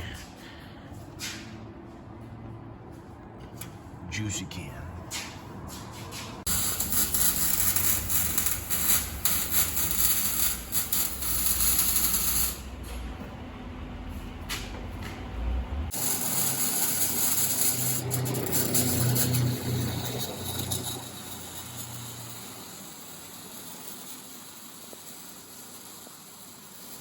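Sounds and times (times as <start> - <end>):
low mechanical hum: 0.0 - 21.2.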